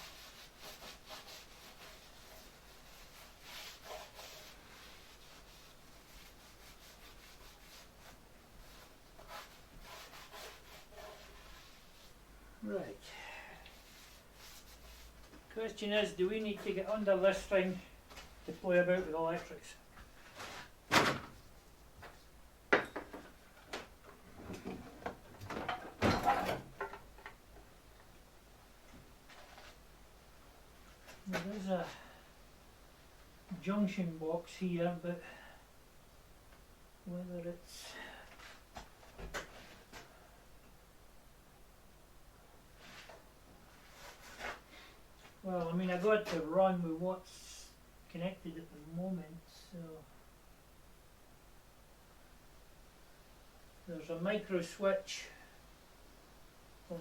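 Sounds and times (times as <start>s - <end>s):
rubbing and scraping: 0.0s - 12.2s, 13.7s - 19.6s, 42.8s - 44.7s
knocks and clatter of tools: 22.0s - 27.4s.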